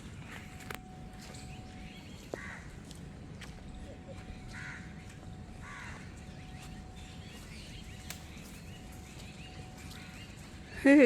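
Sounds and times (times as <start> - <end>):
small birds chirping: 0.1 - 11.0
harsh bird caws: 2.3 - 2.7, 4.5 - 5.0, 5.6 - 6.1.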